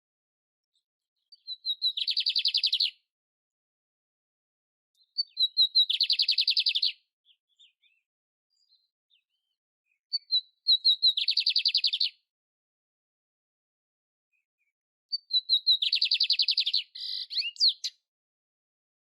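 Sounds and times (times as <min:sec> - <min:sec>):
canary singing: 0:01.3 - 0:03.0, 0:05.0 - 0:08.0, 0:10.1 - 0:12.2, 0:15.1 - 0:18.0.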